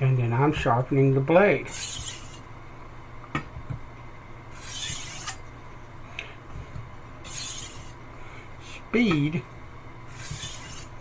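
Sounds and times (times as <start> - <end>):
knife scraping on whetstone: 1.7 - 2.4, 4.5 - 5.4, 7.2 - 8.0, 10.1 - 11.0.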